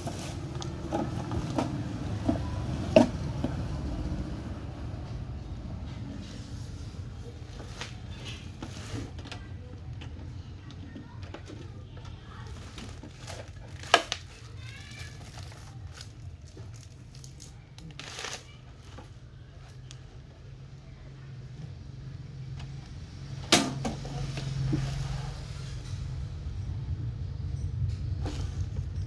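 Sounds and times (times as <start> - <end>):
packaging rustling and crinkling: 0.0 - 3.1, 11.2 - 20.5.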